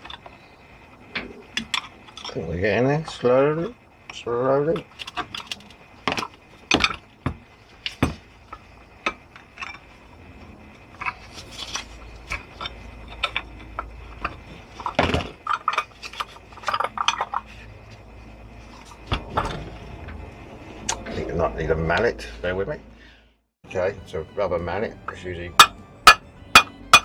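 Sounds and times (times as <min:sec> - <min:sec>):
screwdriver clinking and scraping metal: 0:25.6 - 0:27.0.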